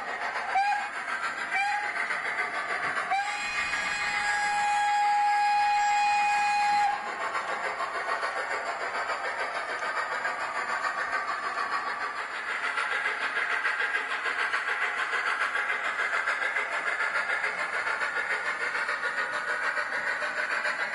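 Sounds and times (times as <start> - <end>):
steam locomotive whistle: 0.5 - 1.9, 3.1 - 7.2.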